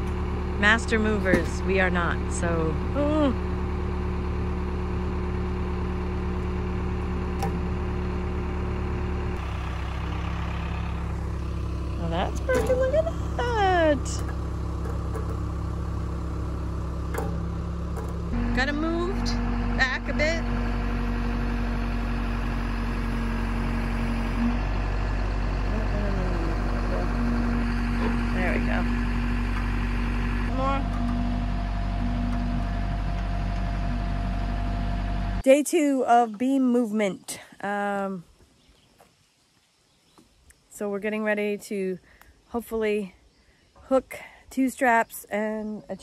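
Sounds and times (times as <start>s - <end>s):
tractor engine running: 0.0s - 35.5s.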